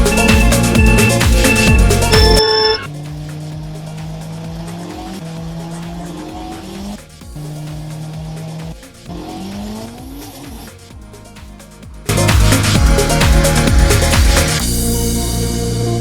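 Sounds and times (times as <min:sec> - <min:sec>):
electronic music with beat: 0:00.0 - 0:16.0
racing car engine: 0:00.0 - 0:16.0.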